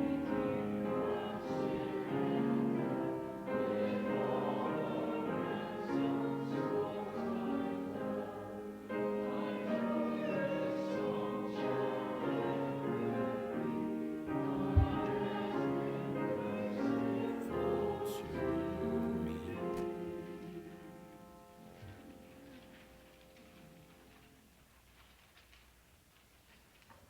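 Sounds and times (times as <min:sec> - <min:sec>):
group singing a hymn: 0:00.0 - 0:22.8
low thump: 0:14.6 - 0:15.2.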